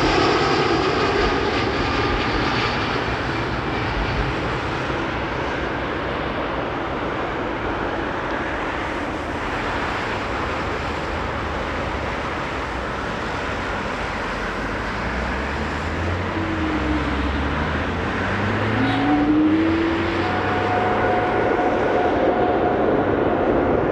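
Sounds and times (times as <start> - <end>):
jet engine rumble: 0.0 - 23.9
rising engine tone: 13.6 - 23.9.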